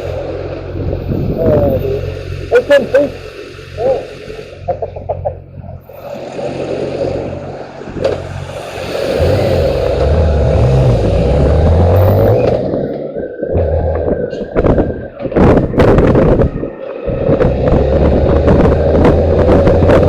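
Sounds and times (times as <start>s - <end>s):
vehicle engine revving: 5.6s - 20.0s.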